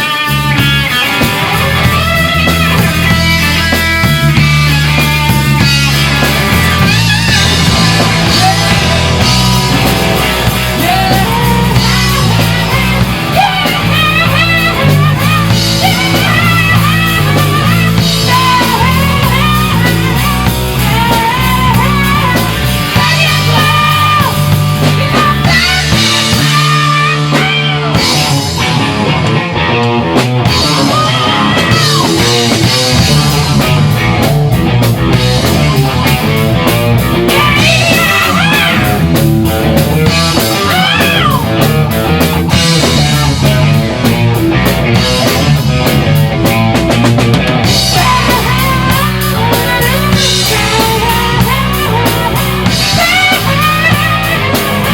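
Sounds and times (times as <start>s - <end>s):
bass guitar: 0.0s - 54.9s
drum kit: 0.0s - 54.9s
electric guitar: 0.0s - 54.9s
person singing: 1.1s - 28.9s, 30.5s - 33.8s, 37.1s - 39.3s, 40.0s - 41.8s, 47.6s - 54.9s.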